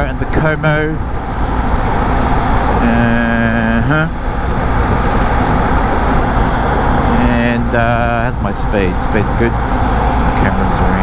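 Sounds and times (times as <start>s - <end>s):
low engine drone: 0.0s - 11.0s
wind and road rumble: 0.0s - 11.0s
held pitched tone: 2.4s - 9.4s.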